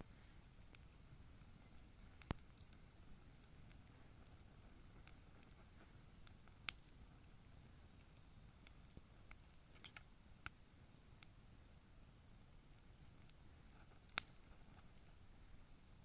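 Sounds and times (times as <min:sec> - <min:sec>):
bonfire crackling: 0:00.0 - 0:16.0
fire popping: 0:00.0 - 0:16.0.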